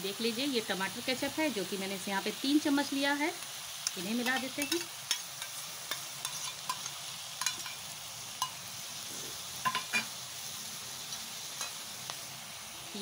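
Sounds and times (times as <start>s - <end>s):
vegetables sizzling in a pan: 0.0s - 13.0s
steel spatula clicking on pan: 3.8s - 8.6s, 9.6s - 10.1s, 11.6s - 11.8s.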